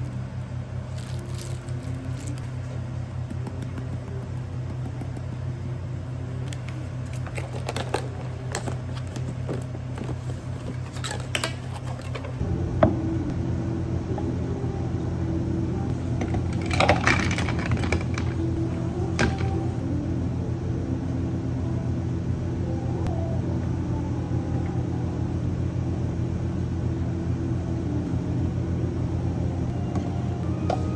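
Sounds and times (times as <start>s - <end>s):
cafe equipment humming: 0.0s - 30.9s
cups and utensils clinking: 16.2s - 18.6s.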